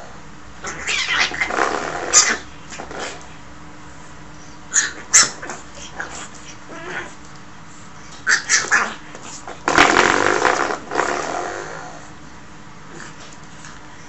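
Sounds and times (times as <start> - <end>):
puppy growling: 0.0 - 3.3, 4.7 - 7.3, 8.1 - 12.2.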